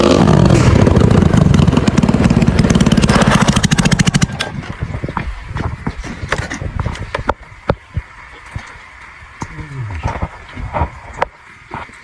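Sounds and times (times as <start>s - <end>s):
motorcycle engine running: 0.0s - 5.9s.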